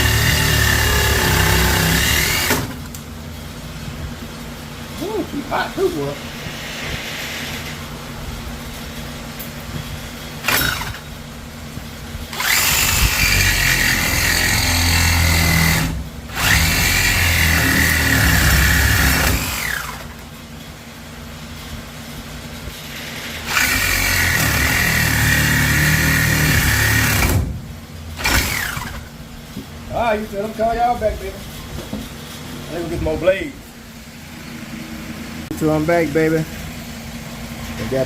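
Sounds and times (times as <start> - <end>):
angle grinder cutting metal: 0.0 - 2.7, 12.4 - 20.0, 23.4 - 27.3.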